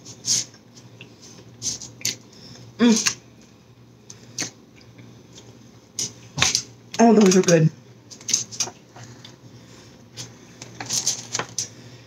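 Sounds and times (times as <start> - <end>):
person humming mm: 2.8 - 3.2.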